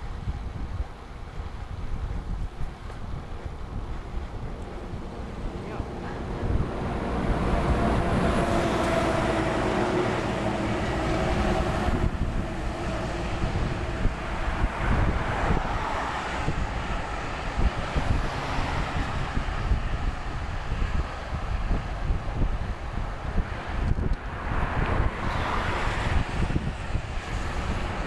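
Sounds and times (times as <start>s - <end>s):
wind rushing over microphone: 0.0s - 28.0s
vehicle humming past: 3.7s - 19.4s.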